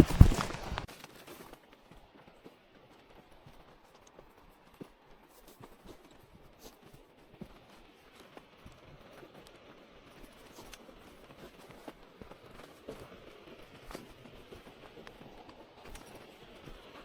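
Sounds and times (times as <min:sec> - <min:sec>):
faint footsteps: 0:00.0 - 0:00.9
rustling: 0:00.0 - 0:00.9.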